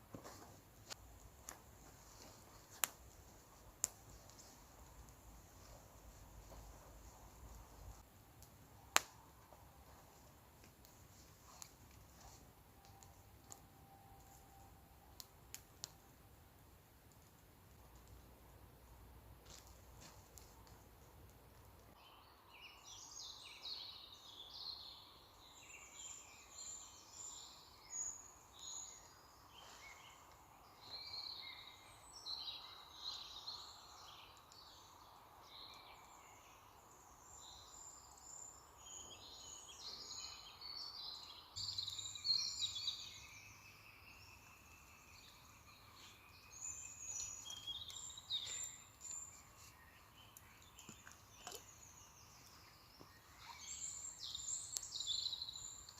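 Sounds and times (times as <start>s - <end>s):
faint forest hiss: 0.0s - 55.9s
songbirds chirping and trilling: 21.8s - 55.9s.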